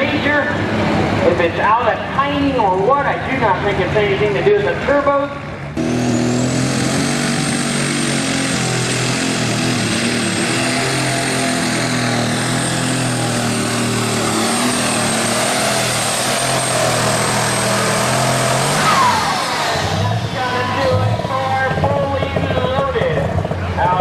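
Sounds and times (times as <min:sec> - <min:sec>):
tractor engine running flat out: 0:00.0 - 0:24.0.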